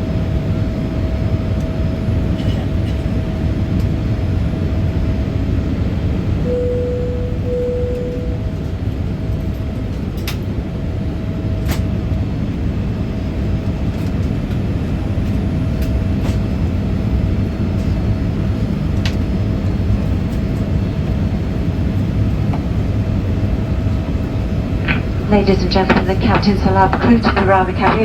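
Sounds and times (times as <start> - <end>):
aircraft engines and airflow drone: 0.0 - 28.0
faint steady hum: 6.3 - 9.5, 21.3 - 28.0.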